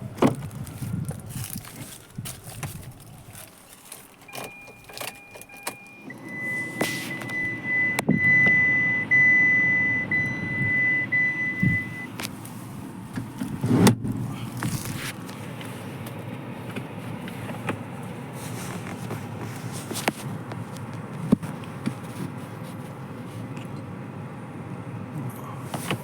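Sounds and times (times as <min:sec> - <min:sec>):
low rumbling: 0:00.0 - 0:03.7, 0:10.1 - 0:17.3
handling noise: 0:00.0 - 0:05.9, 0:11.6 - 0:23.8
steady high electronic beep: 0:04.5 - 0:12.1.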